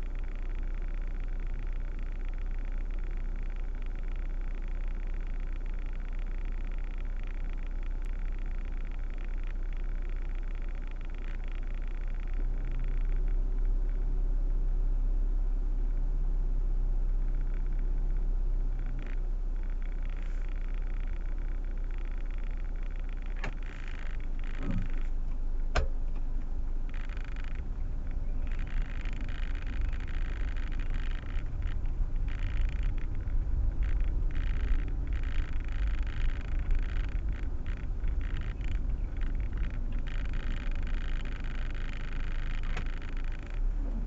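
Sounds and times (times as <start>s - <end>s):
car engine rumble inside cabin: 0.0s - 44.0s
sharp clicks: 18.8s - 43.7s.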